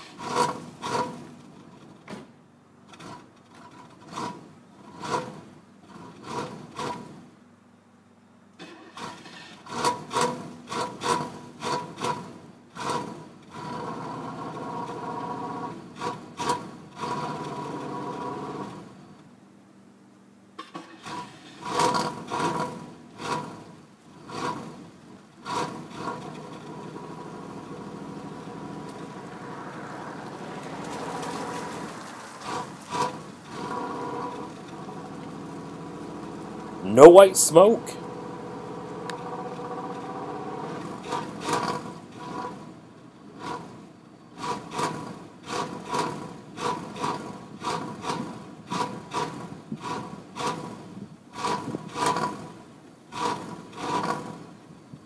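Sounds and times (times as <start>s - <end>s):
car engine cranking and sputtering: 0.0s - 7.5s, 8.5s - 19.4s, 20.6s - 36.9s, 38.0s - 55.0s
car engine running: 24.8s - 37.2s.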